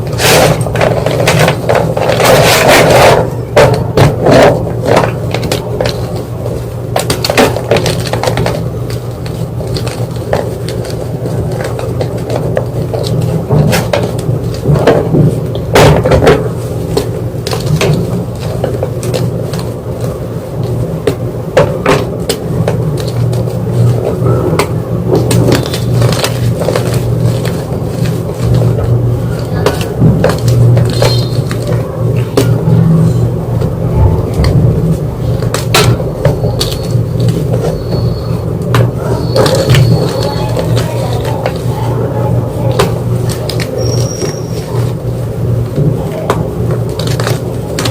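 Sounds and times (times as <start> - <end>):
steady low hum: 0.0 - 47.9
chalk crunching and crackling: 25.0 - 47.9.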